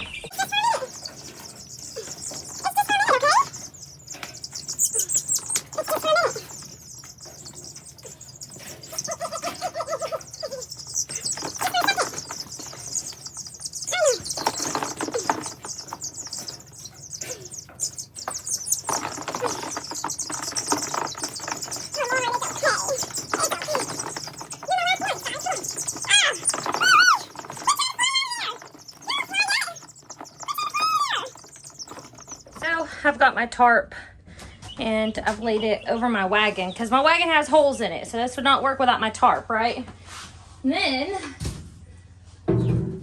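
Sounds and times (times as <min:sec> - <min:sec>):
wings flapping: 0:00.0 - 0:32.7
chickens calling: 0:00.0 - 0:32.9
chorus of high peeping: 0:00.0 - 0:32.9.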